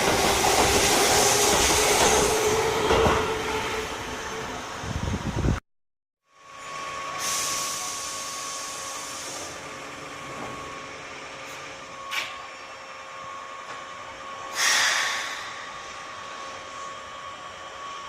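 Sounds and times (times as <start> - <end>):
electric train hiss and whine: 6.4 - 18.0.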